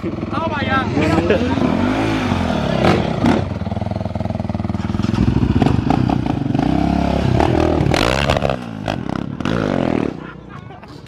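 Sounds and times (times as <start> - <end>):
off-road vehicle engine revving: 0.1 - 10.4.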